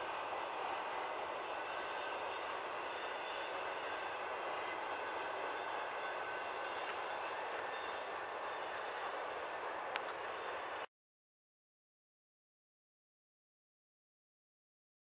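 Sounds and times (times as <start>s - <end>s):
steel wheels on rails: 0.0s - 10.9s.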